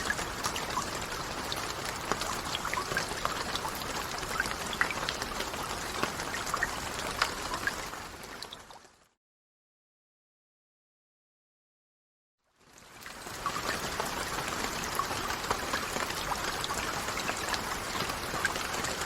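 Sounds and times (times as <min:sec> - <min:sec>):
steady rain: 0:00.0 - 0:09.2, 0:12.5 - 0:19.0.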